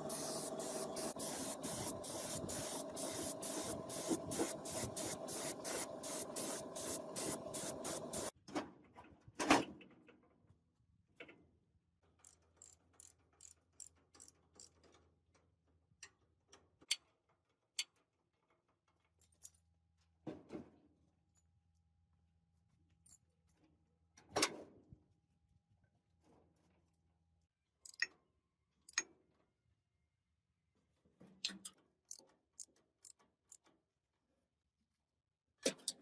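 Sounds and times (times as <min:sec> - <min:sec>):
loud pulsing hiss: 0:00.0 - 0:08.3.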